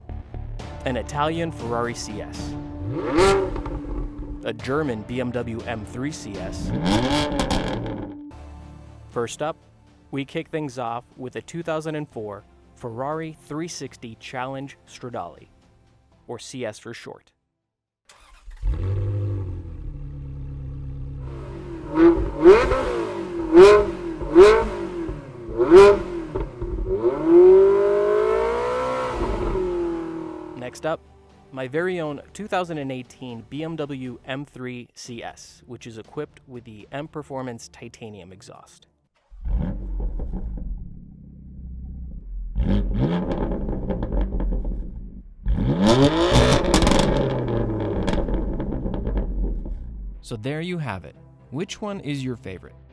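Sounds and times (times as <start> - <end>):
car engine idling and revving: 0.2 - 5.0, 5.6 - 8.3, 18.1 - 30.7, 39.2 - 50.3.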